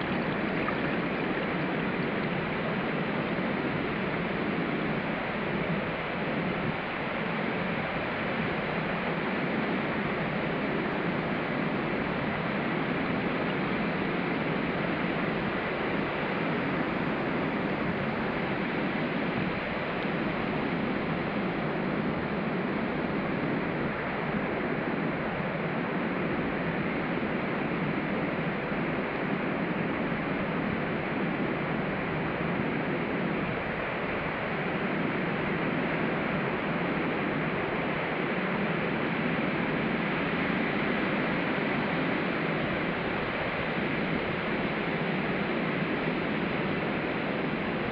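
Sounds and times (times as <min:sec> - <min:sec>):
ocean surf washing onto beach: 0:00.0 - 0:06.5.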